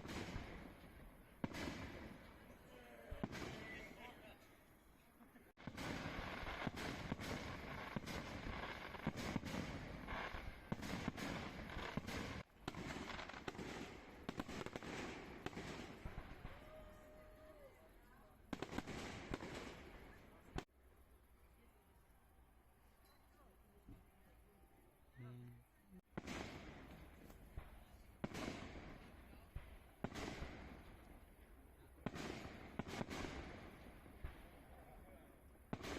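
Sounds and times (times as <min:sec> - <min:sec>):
fireworks bangs and crackle: 0:00.0 - 0:04.4, 0:05.6 - 0:16.8, 0:18.5 - 0:20.7, 0:26.1 - 0:35.9.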